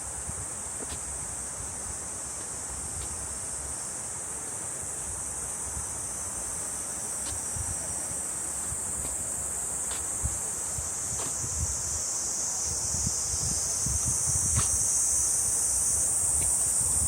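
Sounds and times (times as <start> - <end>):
cicadas chorus: 0.0 - 17.0
wind rumble on microphone: 10.1 - 17.0.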